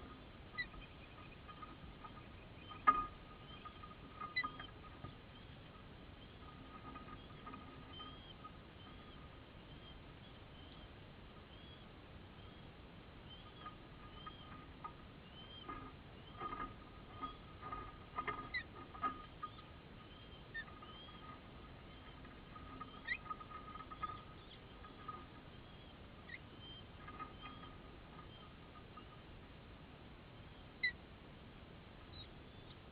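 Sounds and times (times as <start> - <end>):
birds chirping: 0.0 - 32.9
quick rising squeaks: 13.4 - 29.2.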